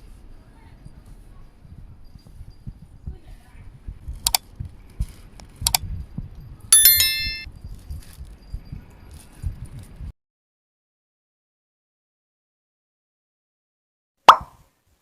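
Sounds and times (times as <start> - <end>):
soft low thumps: 1.6 - 6.6
sharp metallic clicks: 4.2 - 4.5, 5.6 - 5.8
ringing metallic jingle: 6.8 - 7.8.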